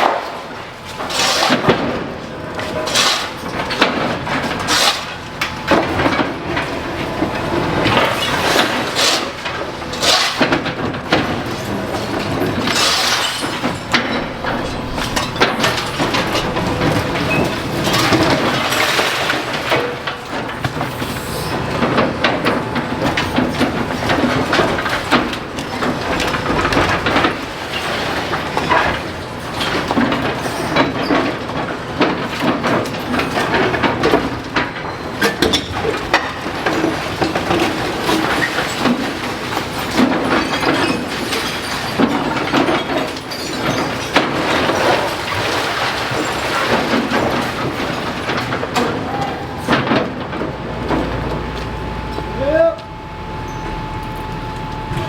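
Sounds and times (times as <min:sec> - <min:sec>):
masonry crunching and breaking: 0:00.0 - 0:51.8
rubble falling: 0:10.4 - 0:34.8, 0:35.6 - 0:51.8.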